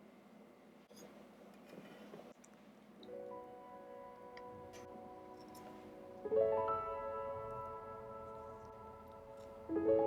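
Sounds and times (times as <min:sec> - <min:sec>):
rolled piano chord ringing: 0:03.2 - 0:10.0.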